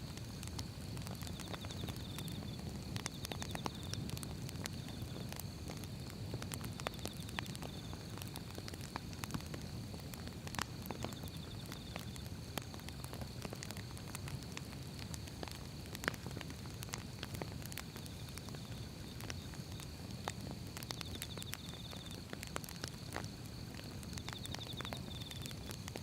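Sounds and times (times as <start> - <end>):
fire rumbling: 0.0 - 26.0
logs crackling and popping: 0.0 - 26.0.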